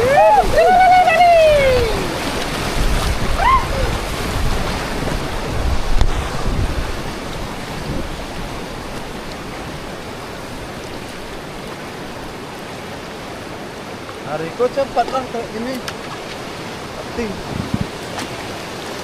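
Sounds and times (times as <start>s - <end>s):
wind on microphone: 0.0s - 11.4s, 16.6s - 18.8s
river water rushing: 0.0s - 19.0s.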